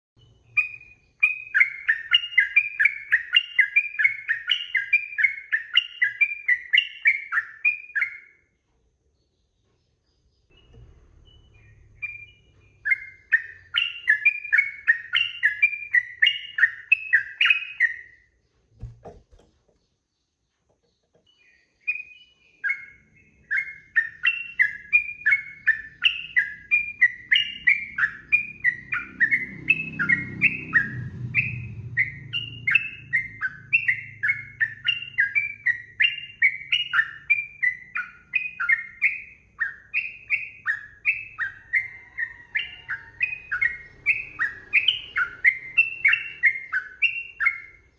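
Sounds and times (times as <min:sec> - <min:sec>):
bird singing chattering whistles: 0:00.2 - 0:08.4, 0:10.5 - 0:18.2, 0:21.3 - 0:47.9
brief knock: 0:18.8 - 0:19.8.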